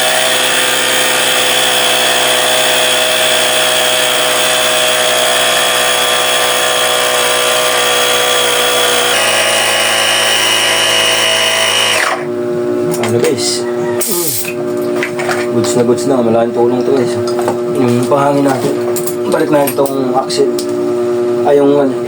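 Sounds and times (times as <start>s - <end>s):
portable air compressor running: 0.0s - 12.3s.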